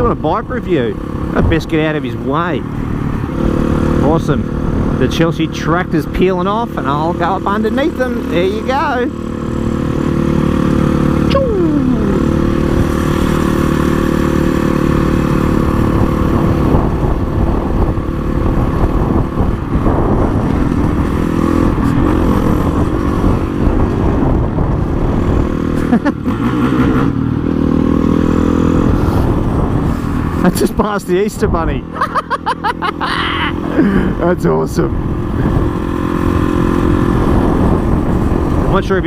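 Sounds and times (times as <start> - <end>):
motorcycle engine running: 0.0 - 39.0
wind noise: 12.3 - 31.9, 33.3 - 39.0.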